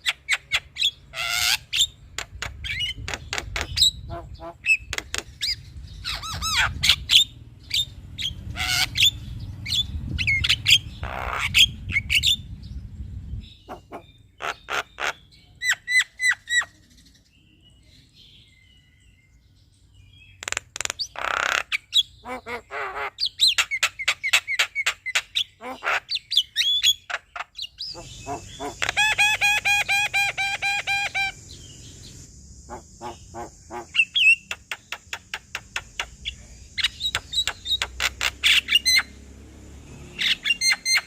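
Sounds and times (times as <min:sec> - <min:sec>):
myna singing clicks and whistles: 0:26.6 - 0:39.1.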